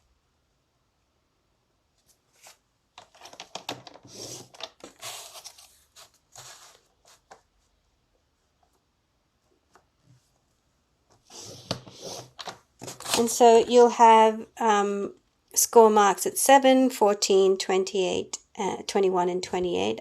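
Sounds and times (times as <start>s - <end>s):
paper rustling: 2.0s - 7.8s, 11.2s - 13.4s.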